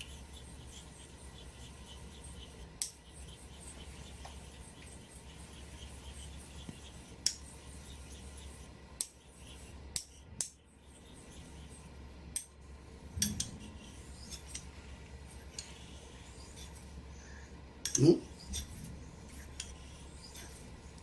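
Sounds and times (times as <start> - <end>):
low hum: 9.4 - 21.0.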